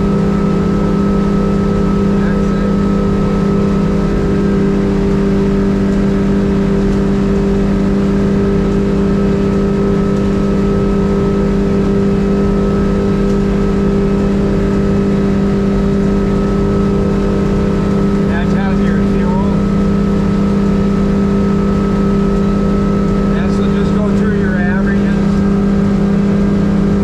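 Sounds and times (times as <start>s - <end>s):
outboard motor running: 0.0s - 27.0s.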